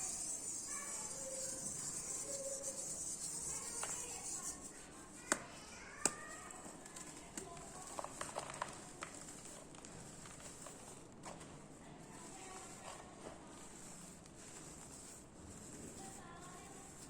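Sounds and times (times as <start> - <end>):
cement balls cracking and crumbling: 6.1 - 11.2.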